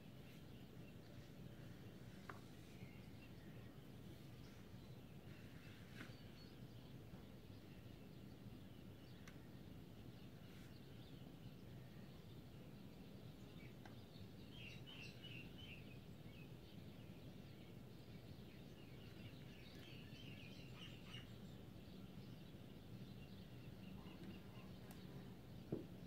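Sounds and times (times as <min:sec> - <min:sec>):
faint birds twittering: 0:00.0 - 0:26.0
low steady background noise: 0:00.0 - 0:26.0.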